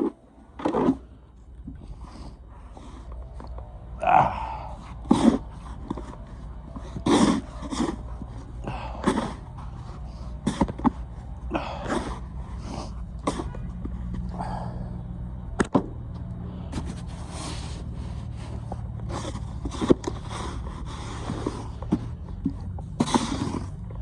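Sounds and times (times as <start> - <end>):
snow shovel scraping: 6.9 - 10.7, 22.9 - 23.8.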